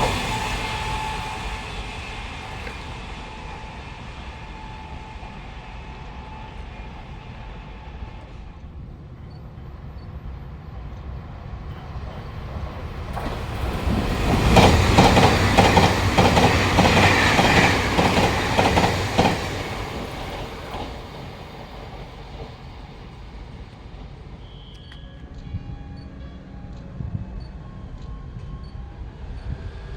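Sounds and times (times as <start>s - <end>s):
train wheels clacking over rails: 0.0s - 8.7s, 11.6s - 25.9s.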